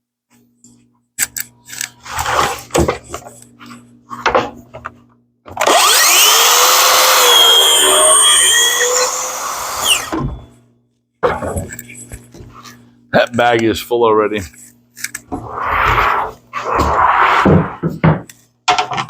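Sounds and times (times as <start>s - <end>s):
power tool cutting wood: 5.6s - 10.3s
wood and tool clattering: 17.5s - 19.0s.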